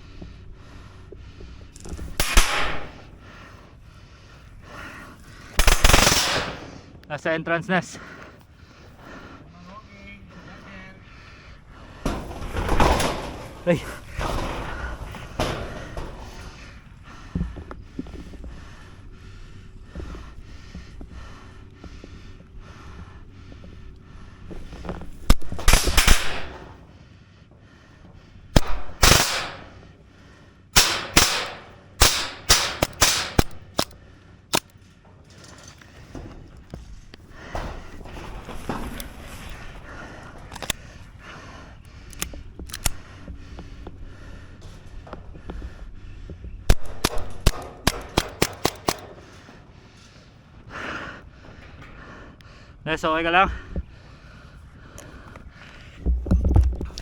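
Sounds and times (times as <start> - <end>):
airsoft guns firing: 2.1 - 3.1, 5.5 - 6.9, 25.3 - 26.7, 28.5 - 29.9, 30.7 - 34.7, 46.7 - 49.4.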